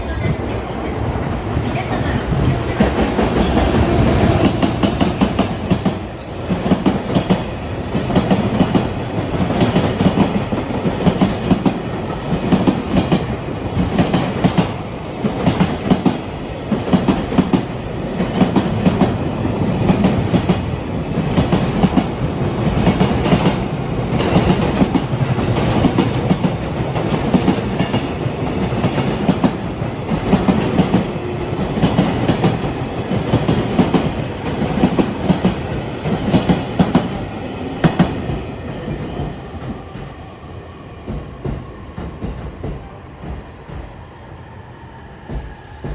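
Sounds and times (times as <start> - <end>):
train rolling rumble: 0.0 - 45.9.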